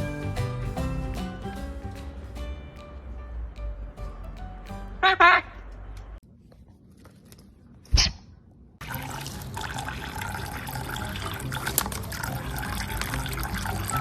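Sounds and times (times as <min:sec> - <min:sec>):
water running: 0:08.8 - 0:14.0.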